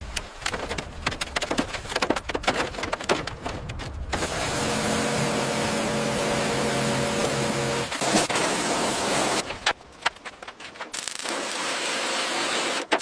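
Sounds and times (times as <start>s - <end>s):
mechanical hum with low drone: 3.3s - 13.0s.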